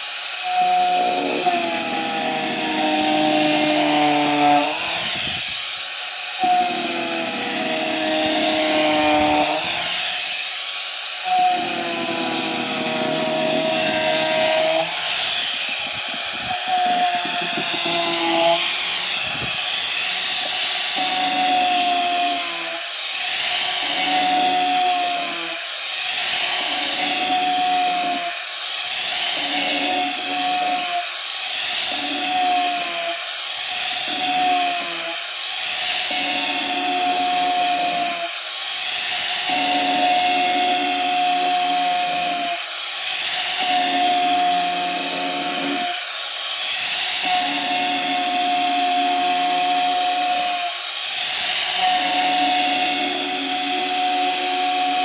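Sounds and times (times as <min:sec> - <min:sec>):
angle grinder sanding wood: 0:00.0 - 0:55.0.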